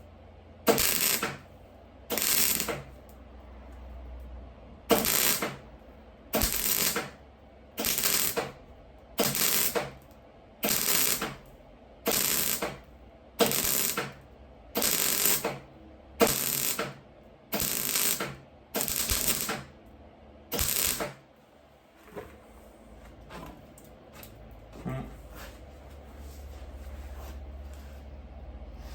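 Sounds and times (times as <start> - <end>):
welding arc crackling: 0.7 - 1.4, 2.1 - 3.1, 4.9 - 5.7, 6.3 - 7.2, 7.8 - 8.6, 9.2 - 10.0, 10.6 - 14.2, 14.8 - 15.6, 16.2 - 19.7, 20.5 - 21.2.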